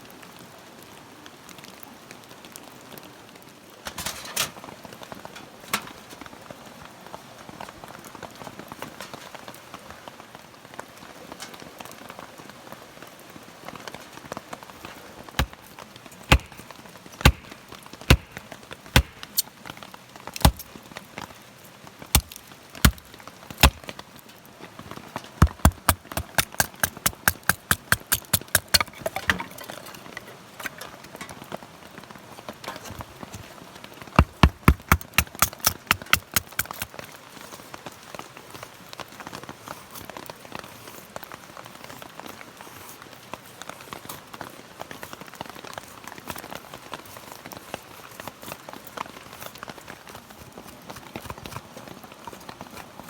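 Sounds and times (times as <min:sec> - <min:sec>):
sharp knocks: 0:16.3 - 0:18.4, 0:19.0 - 0:19.4, 0:20.4 - 0:20.6, 0:22.2 - 0:23.0, 0:23.6 - 0:23.8, 0:25.4 - 0:29.4, 0:34.2 - 0:36.9.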